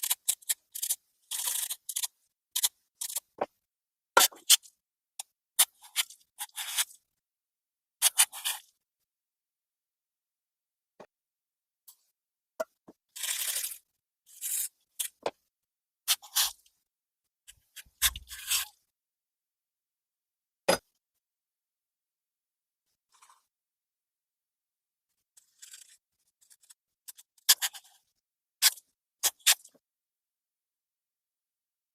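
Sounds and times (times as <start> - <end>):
small parts clicking and knocking: 0.0 - 3.6, 25.4 - 29.8.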